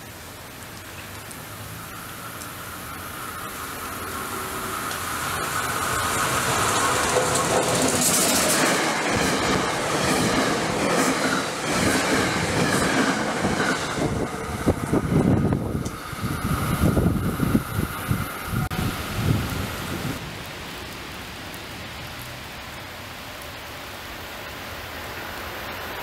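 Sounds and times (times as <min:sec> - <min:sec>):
train wheels rushing on rails: 0:02.3 - 0:20.2.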